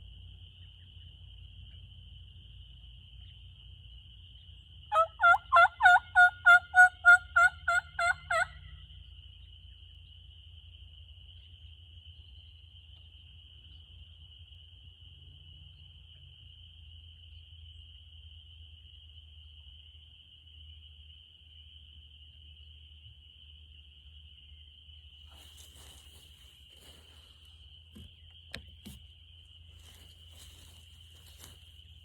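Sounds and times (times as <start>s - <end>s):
turkey yelps: 4.9s - 8.6s
high insect buzz: 25.2s - 32.0s.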